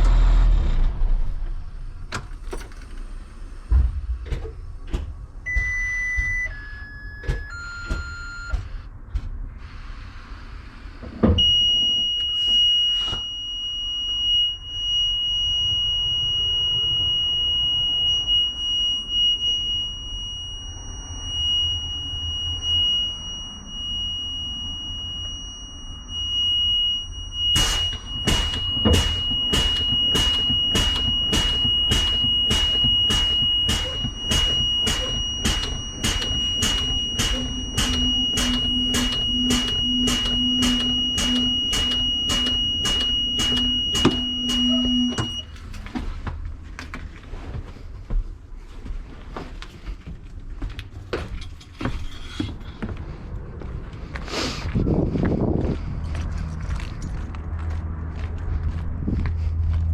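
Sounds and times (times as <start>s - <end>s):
diesel bus engine idling: 0.0s - 5.5s, 27.2s - 45.4s
short descending beeps: 5.5s - 8.6s, 11.4s - 45.6s
high-pitched warning buzzer: 11.4s - 45.5s
rhythmic flasher clicking: 27.6s - 45.4s.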